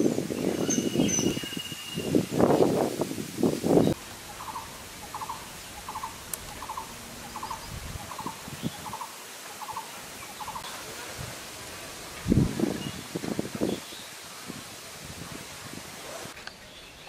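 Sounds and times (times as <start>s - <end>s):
bird rattling call: 4.2s - 10.7s.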